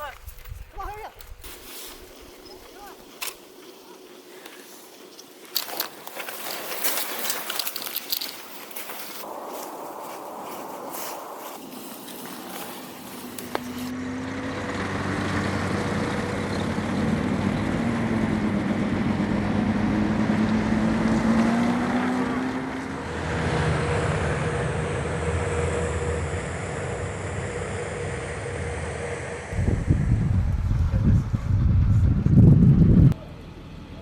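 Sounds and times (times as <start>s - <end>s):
aircraft engine drone: 1.8s - 34.0s
deep rumble: 14.7s - 34.0s.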